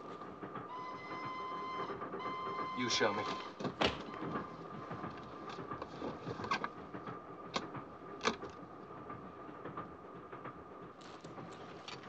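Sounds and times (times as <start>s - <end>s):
moving train rumble: 0.0s - 12.0s.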